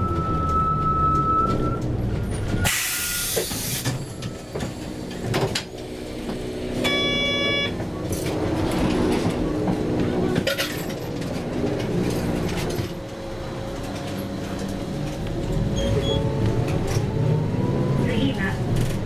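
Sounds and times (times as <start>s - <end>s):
bus engine running: 0.0s - 19.0s
short electronic beep: 6.8s - 7.7s.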